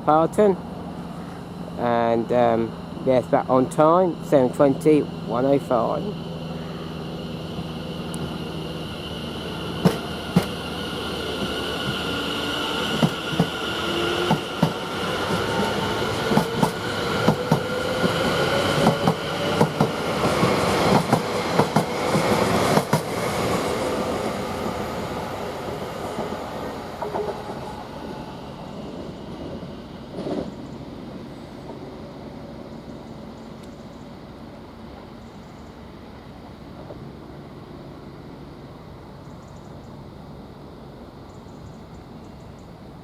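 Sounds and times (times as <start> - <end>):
electric train motor whine: 0.8 - 30.2.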